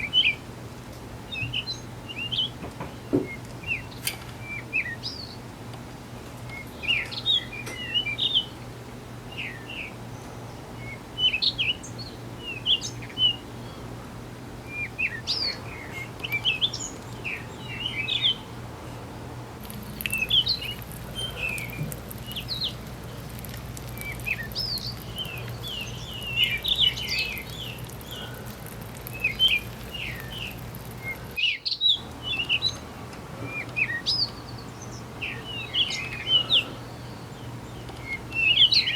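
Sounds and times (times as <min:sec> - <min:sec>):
small birds chirping: 0:00.0 - 0:38.9
steady low hum: 0:00.0 - 0:38.9.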